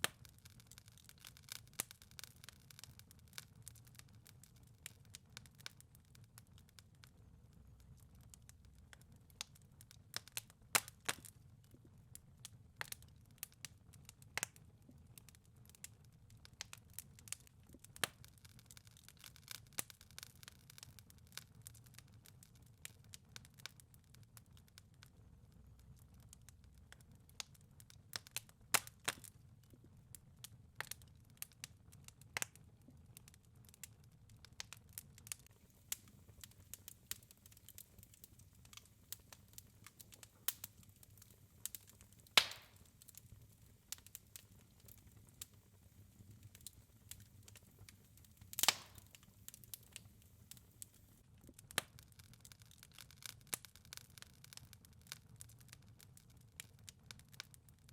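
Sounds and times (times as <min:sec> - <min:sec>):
wood fire crackling: 0:00.0 - 0:57.9
low rumble of flame: 0:24.2 - 0:51.6
loud fire pops: 0:35.4 - 0:45.6, 0:46.2 - 0:51.0.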